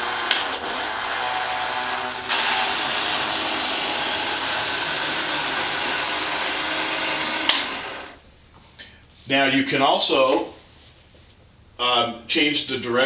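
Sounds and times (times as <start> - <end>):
toy truck mechanical drone: 0.0 - 8.2.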